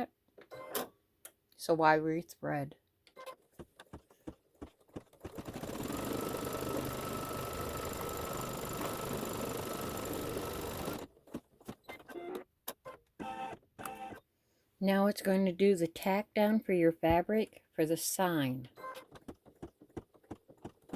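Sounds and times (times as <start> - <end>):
embroidery machine whirring: 5.3 - 11.1.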